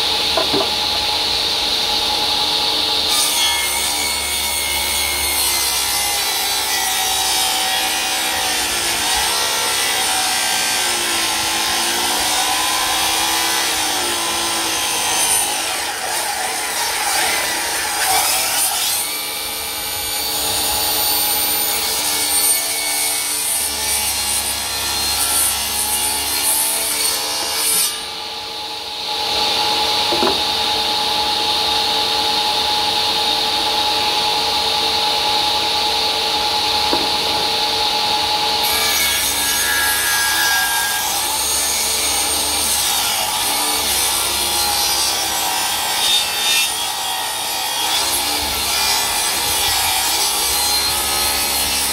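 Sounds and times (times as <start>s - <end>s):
saw blade cutting wood: 0.0s - 1.3s, 3.0s - 32.3s, 33.3s - 51.9s
table saw motor humming: 23.7s - 41.3s.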